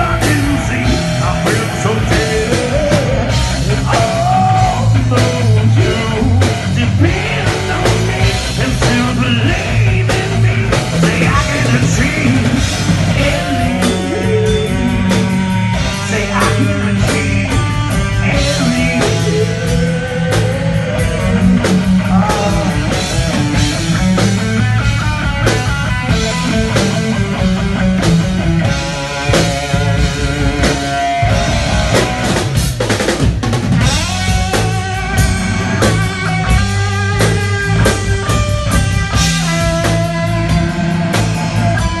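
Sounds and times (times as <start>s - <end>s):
person singing: 0.0s - 23.4s
drum kit: 0.0s - 42.0s
guitar: 0.0s - 42.0s.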